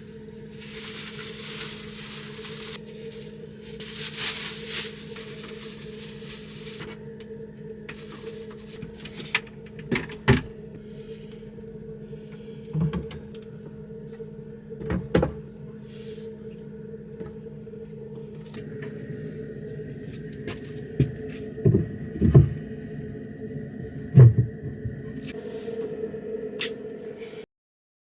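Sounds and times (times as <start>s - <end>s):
steady low hum: 0.0s - 27.5s
knocks and thumps: 12.7s - 13.3s, 14.8s - 15.5s, 20.4s - 22.9s, 23.9s - 25.3s.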